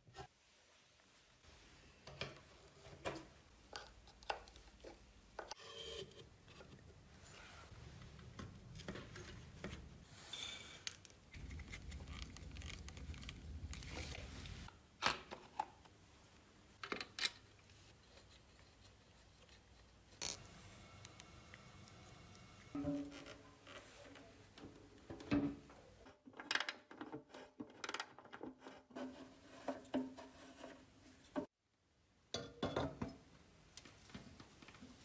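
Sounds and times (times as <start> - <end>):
rubbing or scraping: 28.4 - 31.4.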